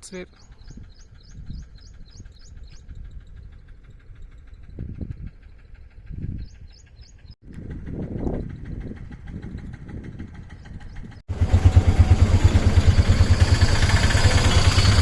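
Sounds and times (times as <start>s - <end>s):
small bird chirping: 0.1s - 7.4s
low rumble: 0.4s - 15.0s.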